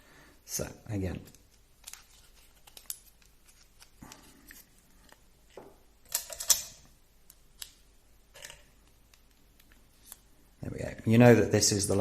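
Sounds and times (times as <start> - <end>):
plastic parts clicking and rattling: 1.3 - 6.9.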